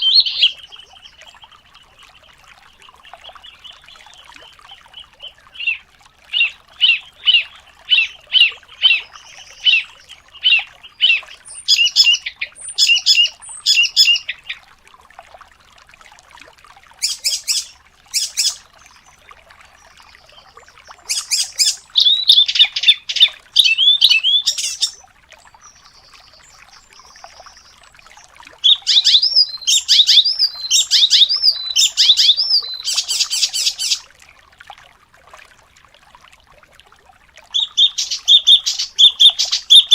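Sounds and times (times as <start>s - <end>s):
songbird singing fast phrases: 0.0s - 1.5s, 3.2s - 14.6s, 17.0s - 18.7s, 20.2s - 25.0s, 28.6s - 34.0s, 37.5s - 39.9s.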